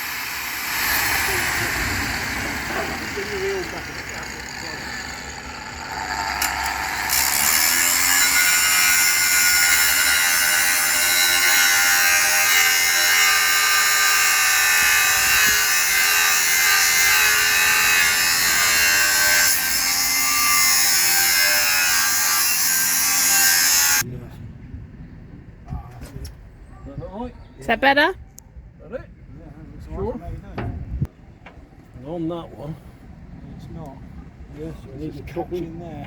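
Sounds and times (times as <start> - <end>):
angle grinder cutting steel: 0.0 - 24.0.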